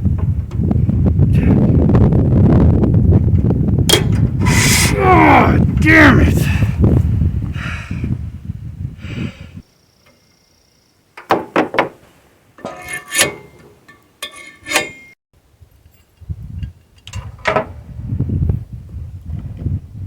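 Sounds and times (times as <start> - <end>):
metal parts clinking and clanking: 12.6 - 15.2.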